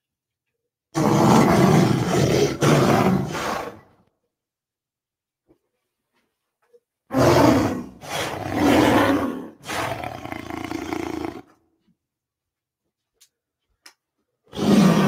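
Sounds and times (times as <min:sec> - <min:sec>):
harsh snarling roars: 0:01.0 - 0:03.9, 0:07.1 - 0:11.5, 0:14.5 - 0:15.0.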